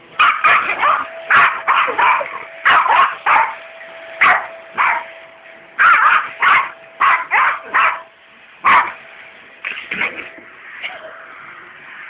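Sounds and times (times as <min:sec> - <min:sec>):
faint steady hum: 0:00.0 - 0:12.0
dog barking: 0:00.2 - 0:03.6, 0:04.2 - 0:05.1, 0:05.8 - 0:09.0.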